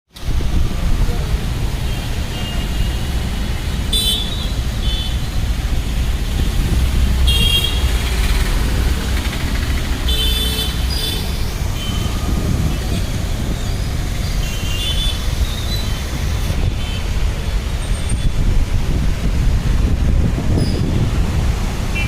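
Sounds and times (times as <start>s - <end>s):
rumble of traffic: 0.1s - 22.0s
car horn toots: 7.3s - 7.9s, 10.1s - 12.2s.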